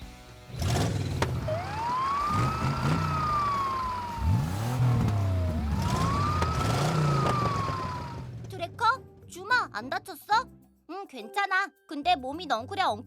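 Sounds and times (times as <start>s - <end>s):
engine revving: 0.4s - 9.3s
cartoon siren wailing: 5.6s - 8.0s.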